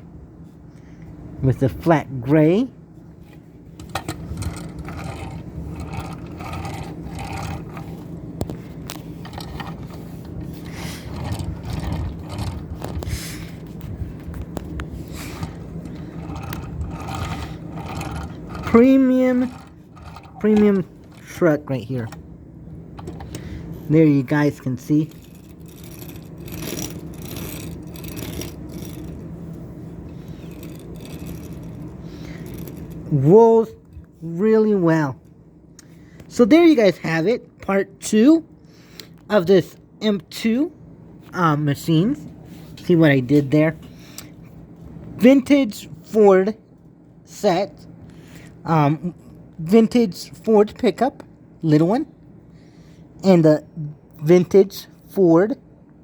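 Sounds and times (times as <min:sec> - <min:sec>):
metal toy scraping and rubbing: 0:03.2 - 0:21.5, 0:23.8 - 0:33.3.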